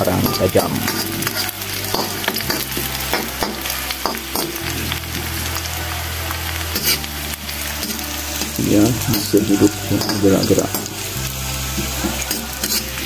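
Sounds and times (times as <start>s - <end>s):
garlic sizzling in hot oil: 0.0s - 13.0s
steel spatula scraping a pan: 0.2s - 4.6s, 7.8s - 13.0s.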